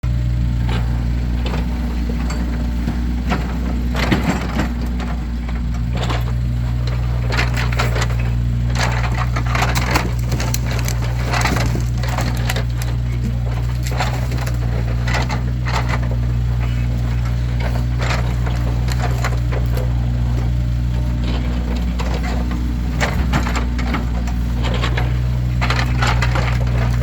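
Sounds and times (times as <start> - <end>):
steady engine hum: 0.0 - 27.0
firewood logs knocking and clattering: 0.1 - 27.0.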